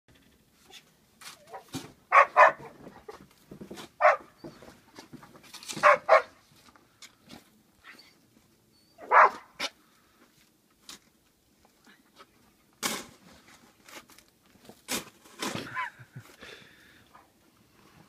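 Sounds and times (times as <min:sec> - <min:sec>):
dog barking: 0:01.4 - 0:02.8, 0:04.0 - 0:04.3, 0:05.8 - 0:06.4, 0:09.0 - 0:09.6.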